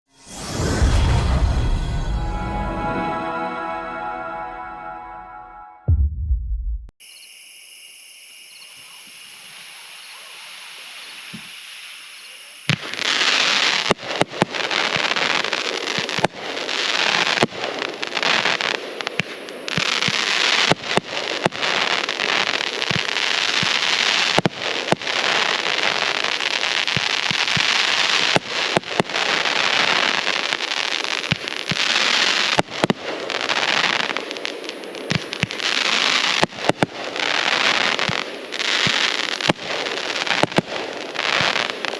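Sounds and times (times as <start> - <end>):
insects trilling: 7.0 - 10.5
crackling hiss of fireworks: 7.0 - 41.9
fireworks bangs: 31.2 - 41.9.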